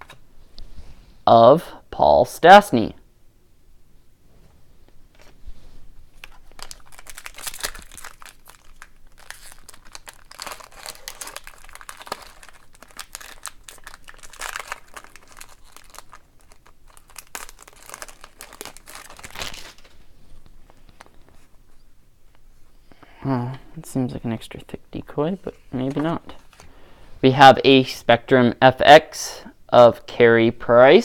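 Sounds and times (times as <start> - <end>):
foil wrapper crinkling: 6.1 - 20.1.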